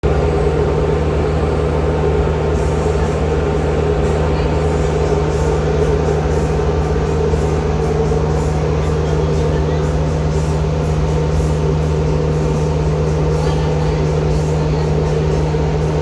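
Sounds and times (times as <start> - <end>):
ferry engines humming: 0.0 - 16.0.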